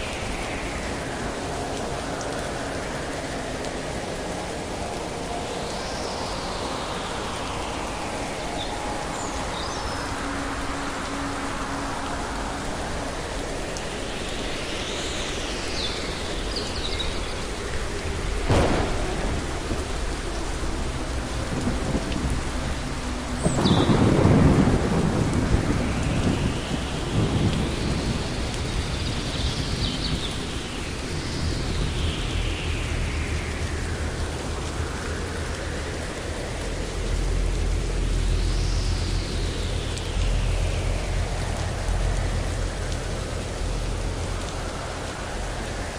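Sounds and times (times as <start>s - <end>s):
steady rain: 0.0s - 45.9s
rolling thunder rumble: 18.3s - 30.7s
thunder crack: 18.5s - 20.2s.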